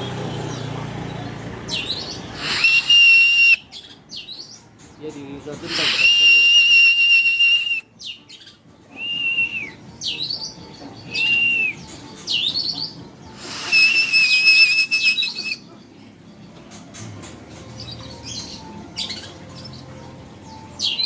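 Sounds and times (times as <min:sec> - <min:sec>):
bird singing loud whistles: 0:01.7 - 0:04.4, 0:05.6 - 0:10.4, 0:11.0 - 0:12.8, 0:13.4 - 0:15.7.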